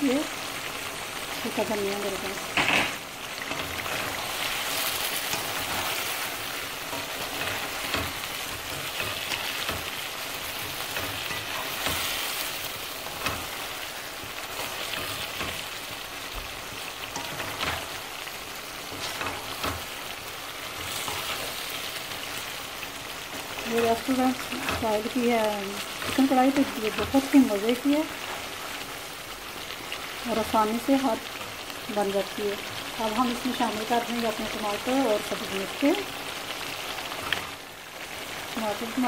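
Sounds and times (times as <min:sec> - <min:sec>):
chicken sizzling in hot oil: 0:00.0 - 0:39.0
spatula scraping a pan: 0:03.4 - 0:18.1.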